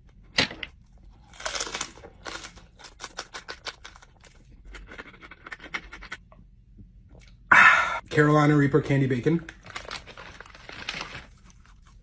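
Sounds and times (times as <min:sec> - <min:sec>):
person chewing: 0:01.1 - 0:06.3.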